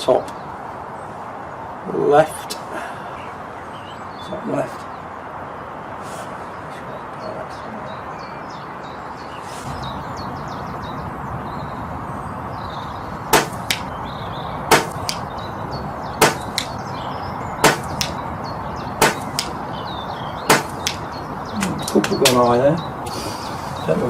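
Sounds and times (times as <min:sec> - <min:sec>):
faint birdsong: 0:00.0 - 0:24.0
steady wind-like hiss: 0:00.0 - 0:24.0
air rifle shots cracking: 0:13.3 - 0:14.0, 0:14.7 - 0:15.4, 0:16.2 - 0:16.9, 0:17.6 - 0:18.2, 0:19.0 - 0:19.6, 0:20.5 - 0:22.5.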